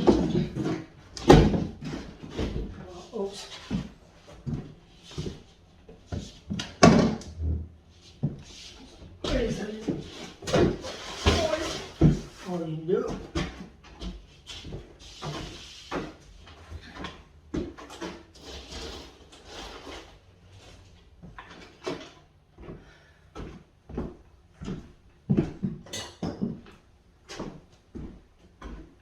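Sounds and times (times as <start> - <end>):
scraping rustles of materials: 7.9 - 12.7, 17.8 - 21.8.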